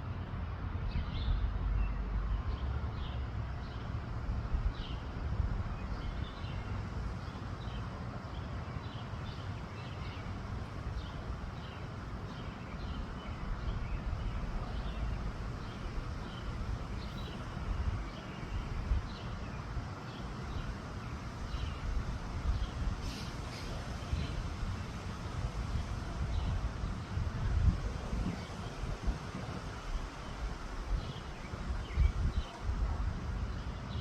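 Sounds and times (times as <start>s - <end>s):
wind buffeting microphone: 0.0s - 7.9s, 10.2s - 34.0s
small birds chirping: 0.9s - 27.0s.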